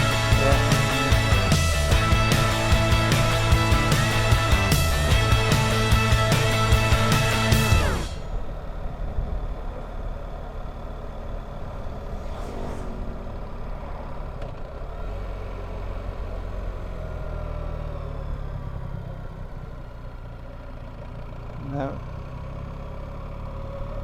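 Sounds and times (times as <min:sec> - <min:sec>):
motorcycle engine running: 0:00.0 - 0:24.0
wind and road noise: 0:00.0 - 0:24.0
brief rushing sound: 0:11.6 - 0:15.3.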